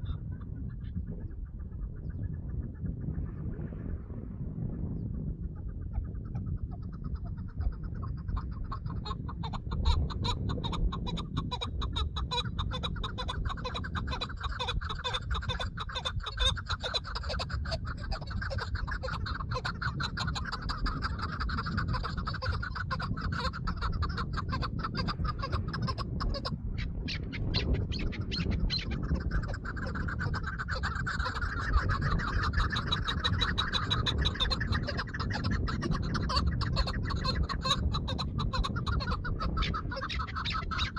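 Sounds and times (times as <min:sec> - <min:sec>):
low rumble: 0:00.0 - 0:06.9
partridge clucking chatter: 0:06.0 - 0:40.9.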